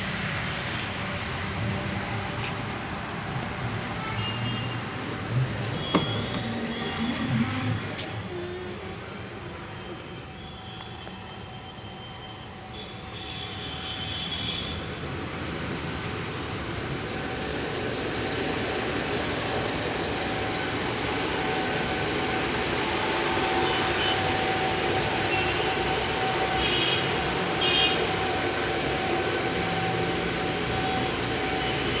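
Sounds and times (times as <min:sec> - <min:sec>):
car engine idling: 0:04.8 - 0:10.3, 0:15.9 - 0:32.0.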